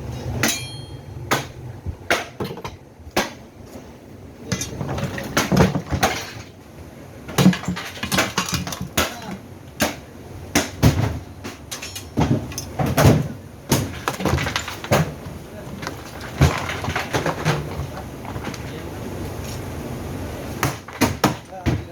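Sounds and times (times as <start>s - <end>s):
machine parts knocking and rattling: 4.5s - 6.6s, 7.3s - 9.4s, 10.7s - 18.9s.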